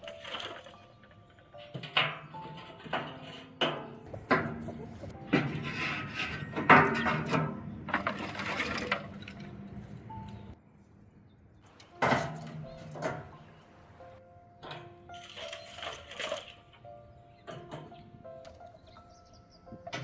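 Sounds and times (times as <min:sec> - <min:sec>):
pots and dishes clinking: 0:00.0 - 0:10.6.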